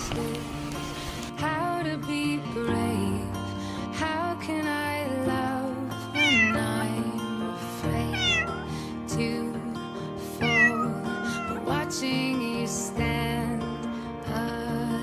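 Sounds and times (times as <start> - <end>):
soft background music: 0.0 - 15.0
kitten meowing: 6.2 - 6.8, 8.1 - 8.7, 10.4 - 11.8.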